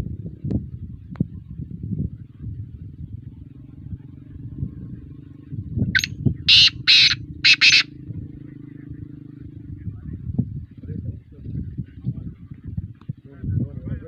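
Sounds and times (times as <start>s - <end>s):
bird calling harshly: 6.0s - 7.9s.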